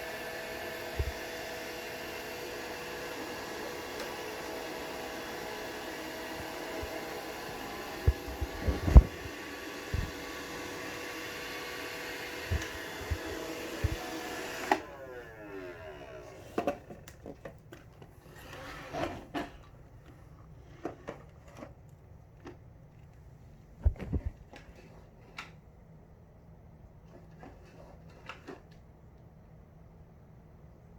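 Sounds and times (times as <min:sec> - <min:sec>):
robot vacuum whirring: 0:00.0 - 0:16.8.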